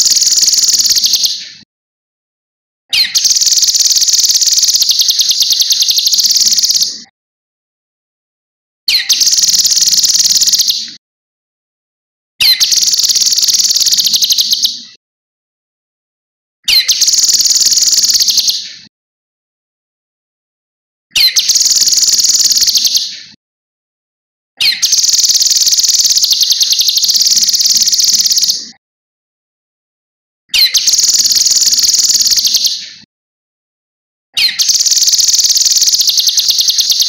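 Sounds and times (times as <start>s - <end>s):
songbird trilling: 0.0s - 1.4s, 3.0s - 7.0s, 8.9s - 10.8s, 12.4s - 14.8s, 16.7s - 18.6s, 21.2s - 23.1s, 24.6s - 28.6s, 30.6s - 32.8s, 34.4s - 37.0s.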